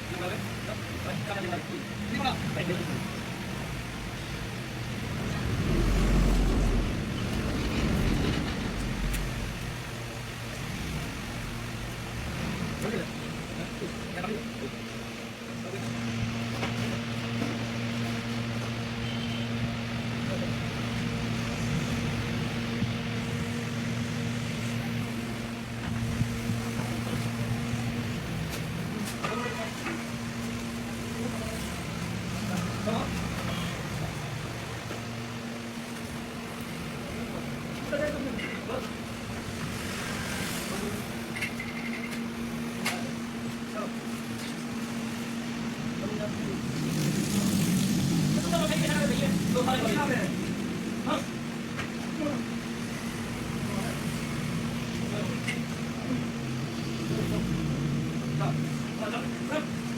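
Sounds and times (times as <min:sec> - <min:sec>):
steady machine hum: 0:01.9 - 0:17.2.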